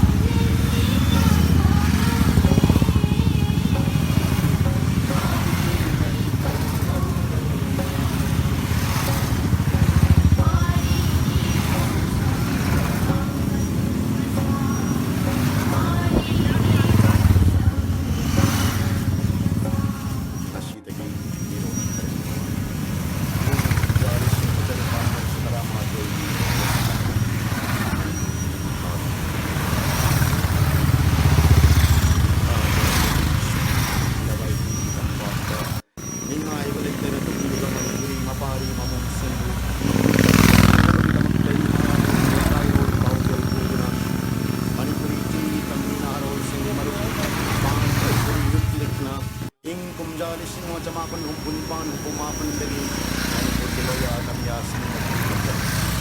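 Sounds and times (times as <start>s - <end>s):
faint voices: 0.0s - 56.0s
motorcycle engines rumbling: 0.0s - 56.0s.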